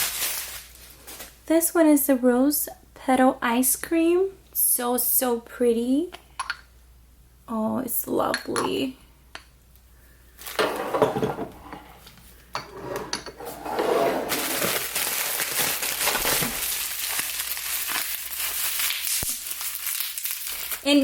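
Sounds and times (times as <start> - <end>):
packaging crinkling: 0.0 - 1.3, 14.3 - 21.0
glass jars clinking: 10.6 - 11.8, 12.6 - 14.7.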